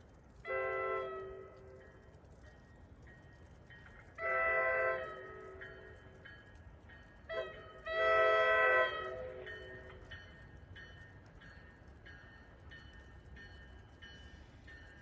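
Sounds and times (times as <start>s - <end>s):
train air horn blasts: 0.4s - 1.8s, 4.2s - 6.0s, 7.3s - 9.9s.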